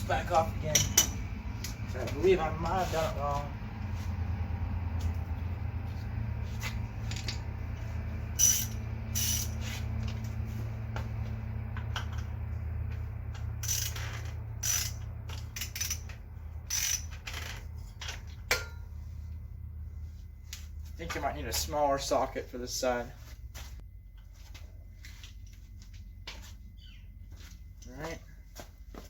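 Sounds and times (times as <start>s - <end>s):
steady low hum: 0.0s - 29.0s
socket wrench ratchet clicking: 8.4s - 9.6s, 13.6s - 17.6s.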